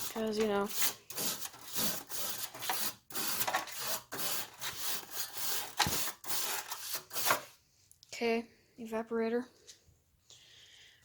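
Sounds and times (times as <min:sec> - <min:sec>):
brush scrubbing metal fins: 0:00.0 - 0:07.5.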